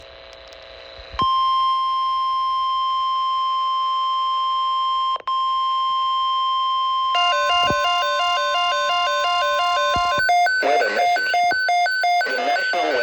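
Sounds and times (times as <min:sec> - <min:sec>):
high warning alarm tone: 0:07.2 - 0:13.0.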